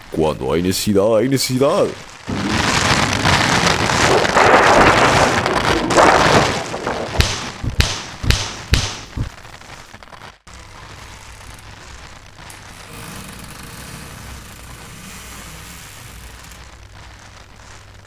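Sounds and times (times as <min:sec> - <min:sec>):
heavy rain hiss: 0:00.0 - 0:18.0
sharp knocks or crashes: 0:02.3 - 0:09.4.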